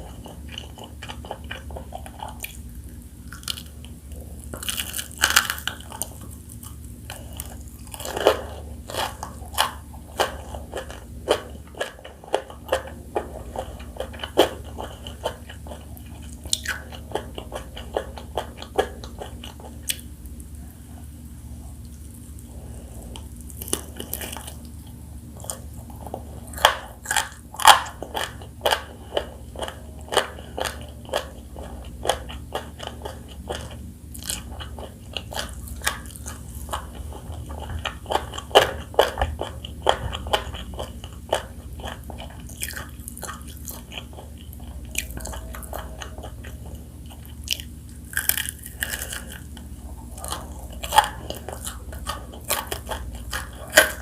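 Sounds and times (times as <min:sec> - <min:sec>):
crunching fried chicken: 0:00.0 - 0:54.0
faint low hum: 0:00.0 - 0:54.0.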